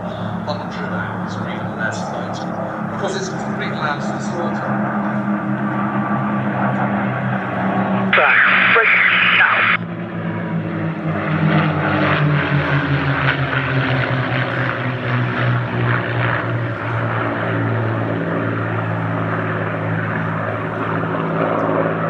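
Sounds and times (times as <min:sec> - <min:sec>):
propeller plane engine drone: 0:00.0 - 0:22.0.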